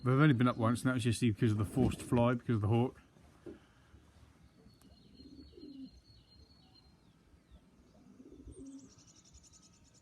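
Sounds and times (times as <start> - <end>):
pigeons cooing: 4.8 - 6.0, 7.9 - 9.4.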